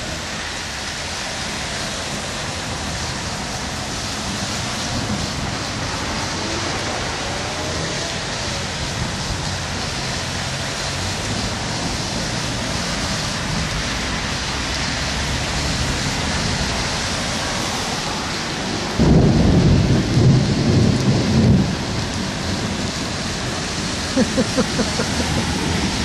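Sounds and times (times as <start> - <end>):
heavy rain pouring: 0.0 - 26.0
thunder rumbling: 17.8 - 26.0.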